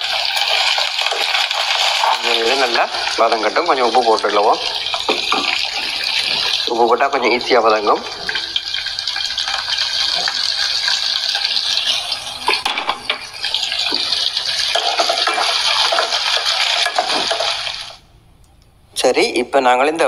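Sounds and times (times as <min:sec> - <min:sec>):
onions sizzling in hot oil: 0:00.0 - 0:18.0
wooden spatula stirring: 0:08.0 - 0:18.0.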